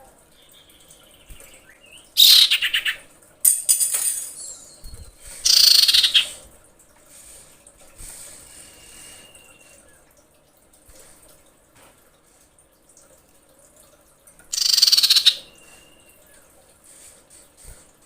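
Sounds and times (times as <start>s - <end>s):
bird harsh chattering calls: 2.2s - 3.0s, 5.4s - 6.4s, 14.5s - 15.5s.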